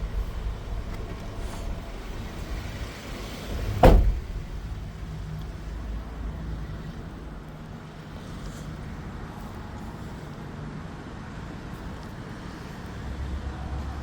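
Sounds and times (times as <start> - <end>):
low steady rumble: 0.0 - 11.0
door slamming shut: 3.4 - 4.6.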